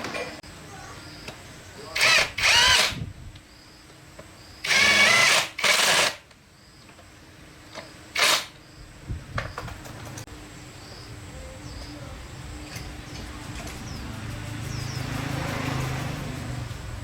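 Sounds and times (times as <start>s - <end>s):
electric power drill whining: 2.0s - 3.0s, 4.6s - 6.2s, 8.2s - 8.5s.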